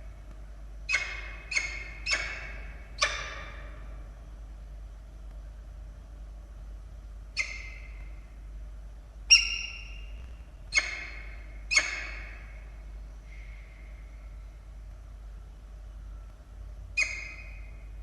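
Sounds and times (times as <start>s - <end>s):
falcon harsh calls: 0.9s - 3.9s, 9.3s - 10.1s, 10.7s - 12.7s.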